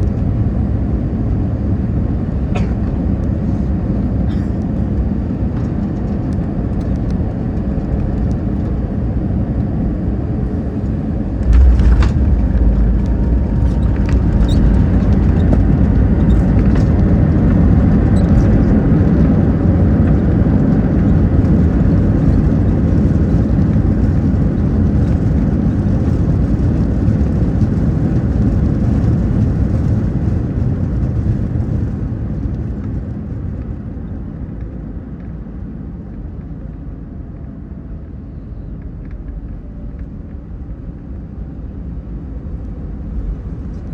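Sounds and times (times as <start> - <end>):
airliner cabin rumble: 0.0 - 43.9
jet engines roaring: 10.4 - 19.0
wheels rolling on runway: 10.5 - 35.2
wheels touching down thump: 10.8 - 17.6.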